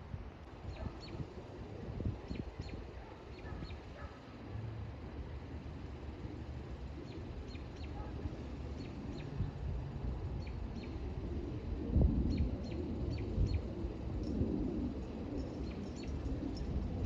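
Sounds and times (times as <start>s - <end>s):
steady low rumble: 0.0s - 17.0s
small birds chirping: 0.6s - 1.4s, 2.2s - 4.2s, 6.9s - 9.5s, 10.4s - 11.1s.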